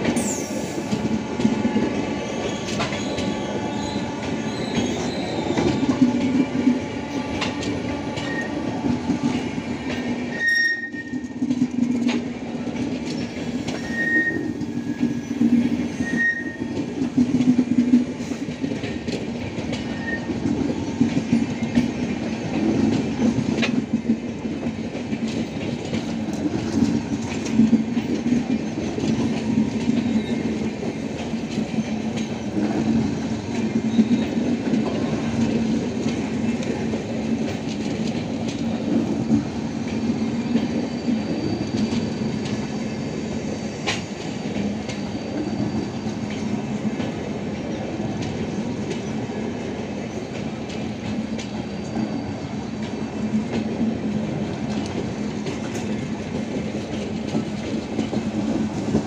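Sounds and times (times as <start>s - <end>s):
clickety-clack of wheels: 0.0s - 59.0s
train wheels rumbling on rails: 0.0s - 59.0s.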